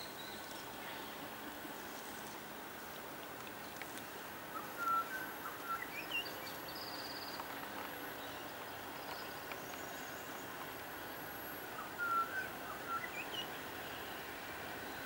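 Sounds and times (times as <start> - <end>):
faint outdoor background: 0.0 - 15.0
whistled bird notes: 4.5 - 7.4, 11.8 - 14.0.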